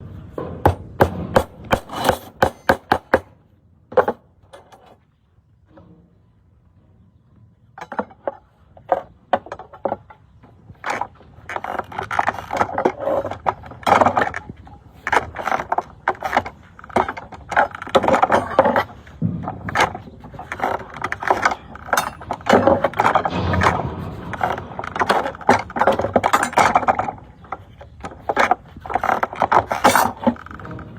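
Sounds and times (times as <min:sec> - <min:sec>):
sharp knocks: 0:00.4 - 0:04.7, 0:17.0 - 0:27.3
scraping: 0:07.8 - 0:30.9.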